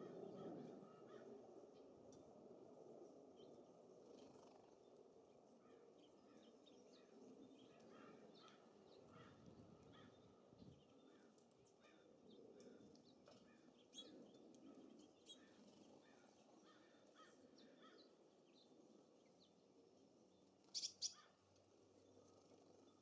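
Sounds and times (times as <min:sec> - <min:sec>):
small birds chirping: 0:06.0 - 0:19.6, 0:20.3 - 0:21.4
low wind rumble: 0:08.2 - 0:11.3.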